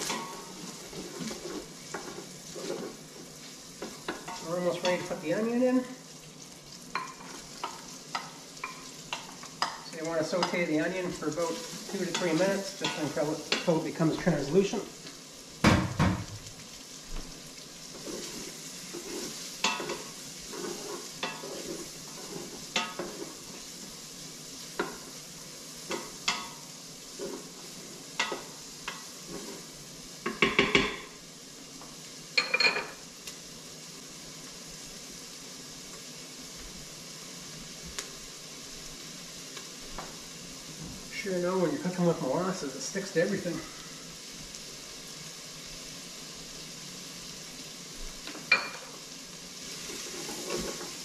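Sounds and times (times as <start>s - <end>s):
wooden spoon scraping a pot: 0.0s - 5.2s, 17.8s - 23.7s, 25.9s - 30.6s, 49.7s - 51.0s
onion and bacon sizzling: 0.0s - 51.0s.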